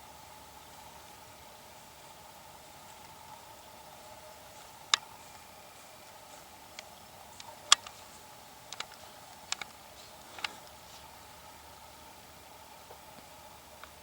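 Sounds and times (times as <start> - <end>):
faint background hiss: 0.0 - 14.0
sharp clicks and taps: 8.7 - 10.8.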